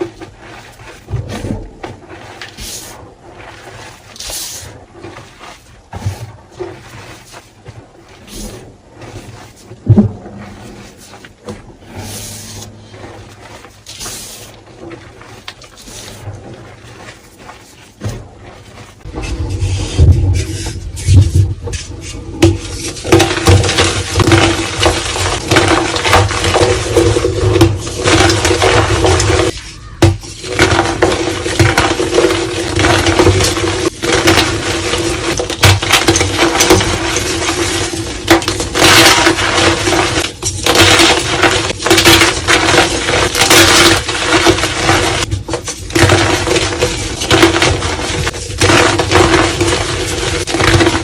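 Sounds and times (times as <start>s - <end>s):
dull thuds: 4.7s - 51.0s
chalk crackling and crunching: 22.7s - 51.0s.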